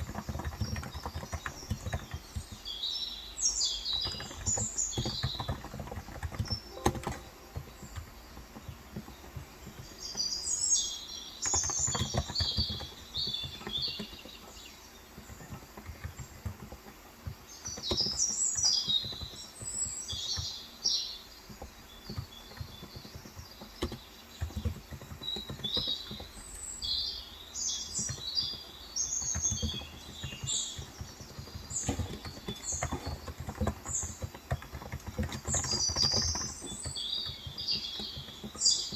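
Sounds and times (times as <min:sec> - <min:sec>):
small birds chirping: 0:00.0 - 0:38.9
soft keyboard keystroke clicks: 0:04.0 - 0:09.9.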